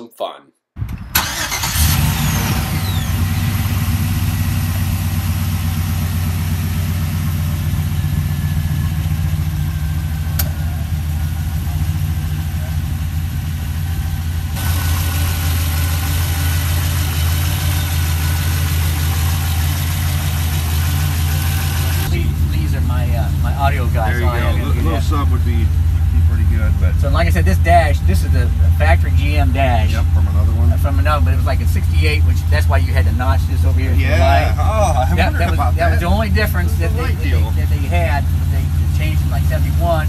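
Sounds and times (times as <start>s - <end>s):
truck engine droning: 0.8s - 40.0s
falling whistle: 2.7s - 3.5s.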